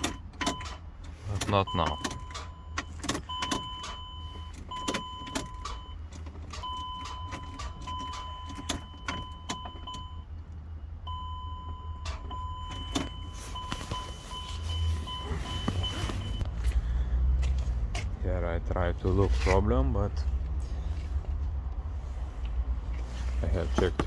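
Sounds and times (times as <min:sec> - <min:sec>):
car starter clicking: 0:00.0 - 0:10.2, 0:11.1 - 0:16.4.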